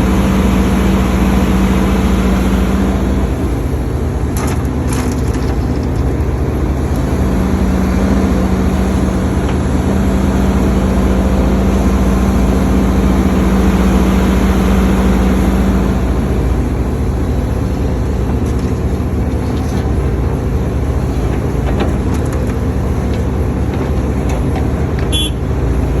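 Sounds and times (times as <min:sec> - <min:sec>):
excavator diesel engine droning: 0:00.0 - 0:26.0
held tone: 0:25.1 - 0:25.5.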